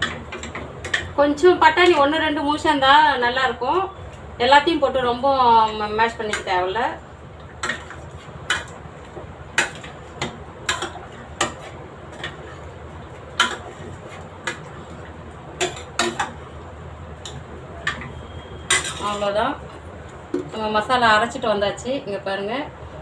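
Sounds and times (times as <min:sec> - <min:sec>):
ladle clinking against pot: 0:17.3 - 0:19.2.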